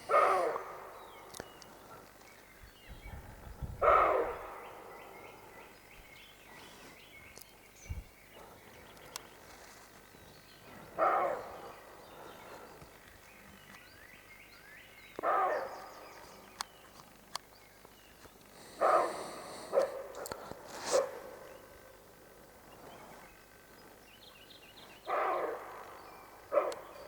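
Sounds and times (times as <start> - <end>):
deer barking: 0.0 - 2.1, 3.4 - 6.0, 10.7 - 12.8, 15.2 - 16.3, 18.6 - 22.0, 24.9 - 27.0.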